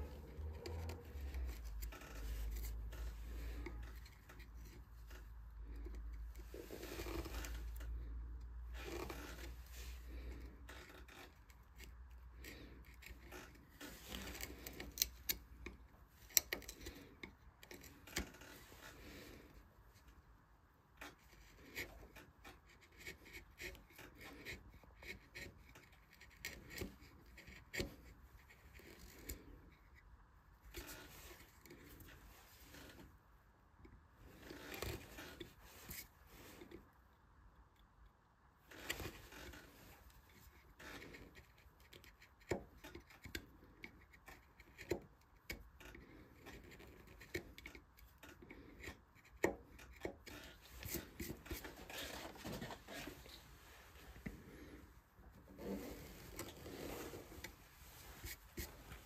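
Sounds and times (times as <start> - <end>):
carving tools scraping wood: 0.0 - 37.0, 38.6 - 59.0.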